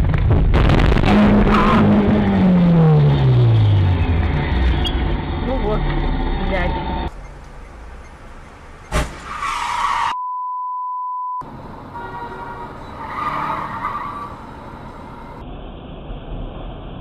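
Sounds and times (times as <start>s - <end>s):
road and tyre noise: 0.0s - 10.2s, 11.4s - 17.0s
car collision bang: 8.9s - 9.4s
tyre squeal: 8.9s - 10.2s, 12.8s - 14.5s
steady one-pitch beep: 10.2s - 11.4s.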